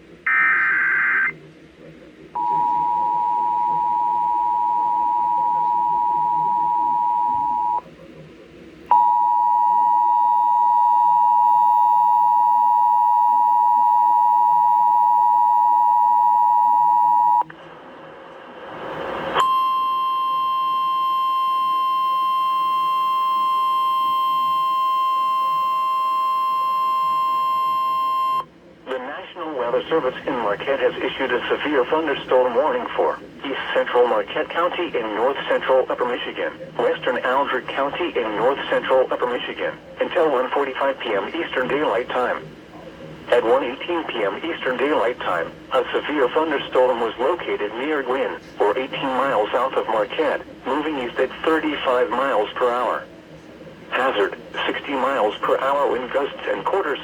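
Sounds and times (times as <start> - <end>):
steady alert tone: 0.3 - 1.3
two-tone alert signal: 0.3 - 1.3.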